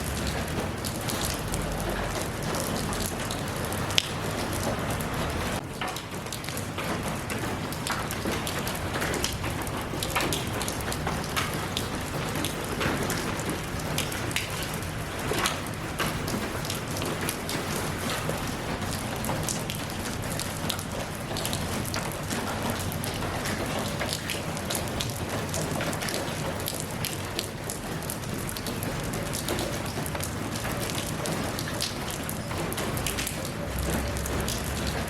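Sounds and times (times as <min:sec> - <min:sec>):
raindrops ticking on a surface: 0:00.0 - 0:35.0
steady rain falling: 0:00.0 - 0:35.0.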